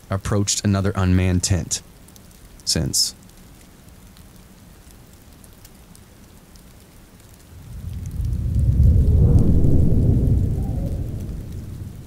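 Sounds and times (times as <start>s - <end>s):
rain drips: 0.0s - 12.0s
soft steady rain: 0.0s - 12.0s
deep roll of thunder: 7.5s - 12.0s.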